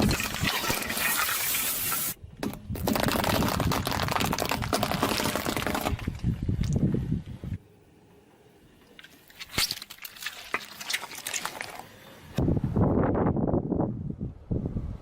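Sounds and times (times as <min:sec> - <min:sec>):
hissing spray of liquid: 0:00.4 - 0:02.2.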